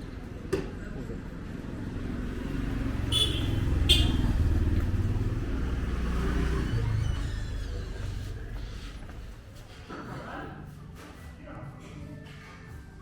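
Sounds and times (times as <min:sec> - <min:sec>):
vehicle engine passing: 0:01.8 - 0:09.2.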